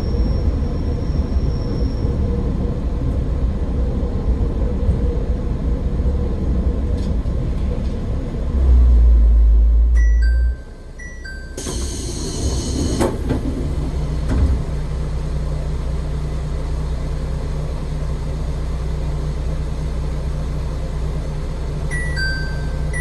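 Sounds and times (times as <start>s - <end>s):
diesel railcar engine rumble: 0.0s - 23.0s
two-note electronic beeps: 10.0s - 12.5s, 21.9s - 23.0s.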